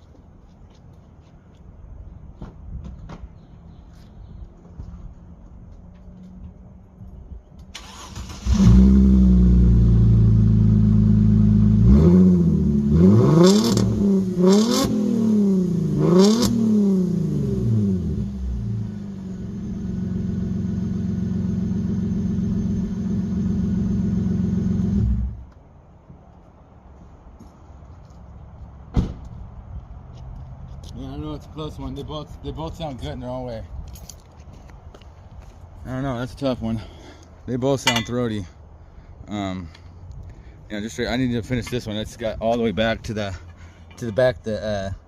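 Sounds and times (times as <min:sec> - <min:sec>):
car engine cranking and idling: 0:07.6 - 0:12.9
engine revving: 0:07.8 - 0:25.4.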